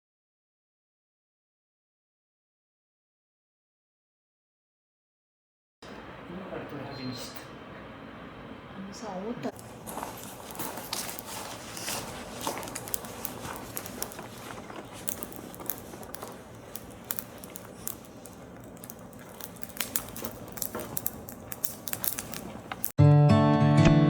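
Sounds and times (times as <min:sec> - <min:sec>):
low rustling: 0:09.5 - 0:22.9.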